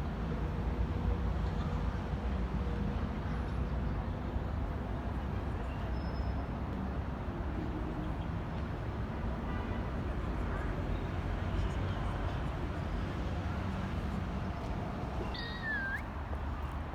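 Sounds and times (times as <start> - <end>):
low rumble of traffic: 6.6 - 16.9.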